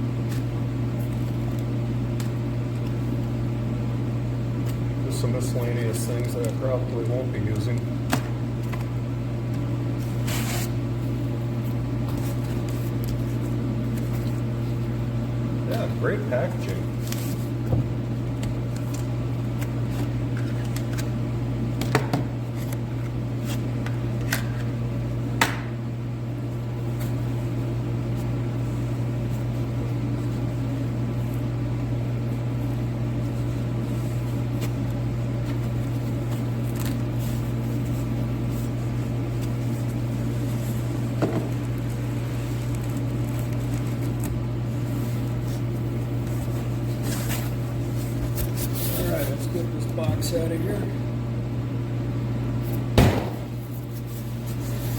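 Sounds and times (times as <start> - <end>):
heater humming: 0.0 - 54.9
packaging being handled: 32.6 - 50.3.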